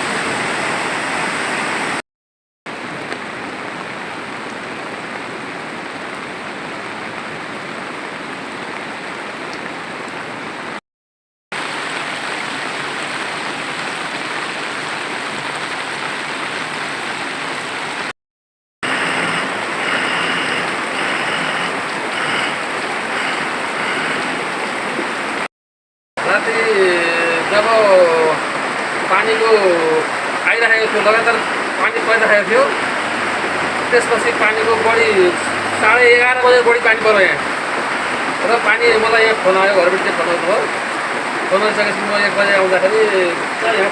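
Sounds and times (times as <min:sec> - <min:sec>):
floodwater rushing: 0:00.0 - 0:02.0, 0:18.8 - 0:25.5, 0:26.4 - 0:43.9.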